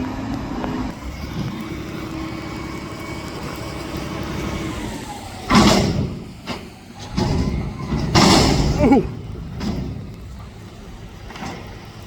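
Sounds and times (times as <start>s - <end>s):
garbage truck diesel engine running: 0.6s - 12.0s
loud bang: 5.5s - 10.8s.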